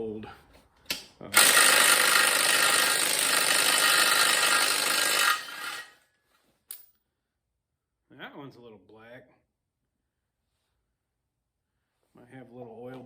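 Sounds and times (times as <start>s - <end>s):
power tool running: 1.3s - 6.0s.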